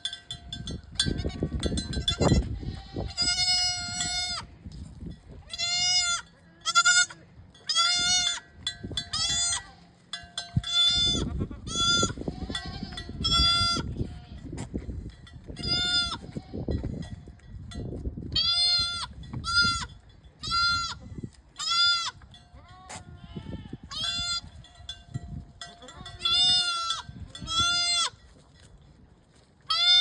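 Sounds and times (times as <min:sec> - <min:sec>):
goat kid bleating: 0:01.0 - 0:04.5, 0:05.4 - 0:08.5, 0:09.1 - 0:10.0, 0:10.7 - 0:14.4, 0:15.6 - 0:16.7, 0:18.4 - 0:21.0, 0:21.6 - 0:24.5, 0:25.8 - 0:28.2, 0:29.7 - 0:30.0.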